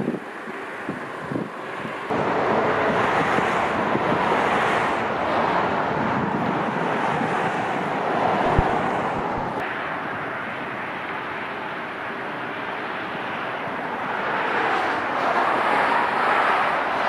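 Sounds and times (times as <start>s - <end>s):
wind buffeting microphone: 0.0s - 10.8s
jet airliner engine rush: 0.0s - 17.0s.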